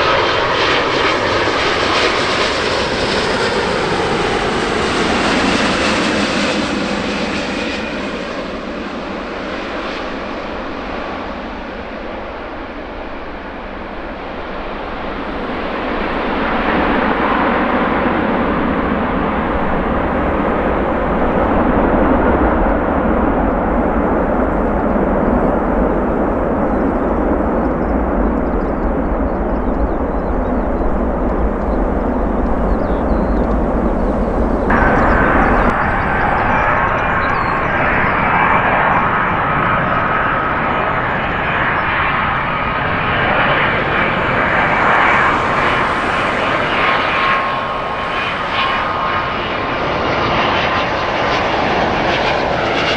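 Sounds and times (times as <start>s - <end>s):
jet engines roaring: 0.0s - 52.9s
engine high whine: 29.8s - 49.3s.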